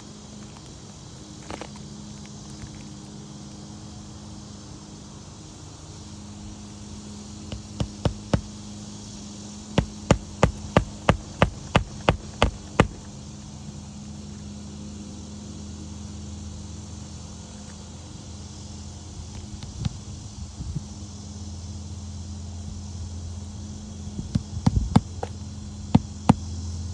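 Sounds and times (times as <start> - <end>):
hammer striking on roof: 7.5 - 8.6, 9.7 - 13.2.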